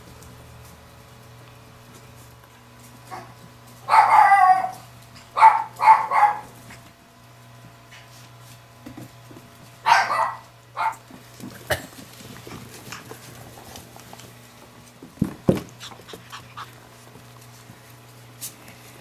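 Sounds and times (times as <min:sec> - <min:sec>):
puppies yapping: 0:03.1 - 0:06.6, 0:09.8 - 0:11.0, 0:15.7 - 0:17.0.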